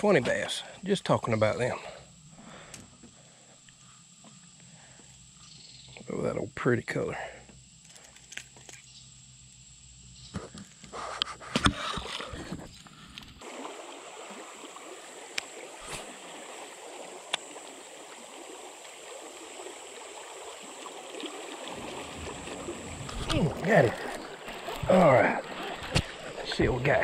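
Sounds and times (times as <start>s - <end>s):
river current flowing: 11.8s - 27.0s
water splash: 13.4s - 27.0s.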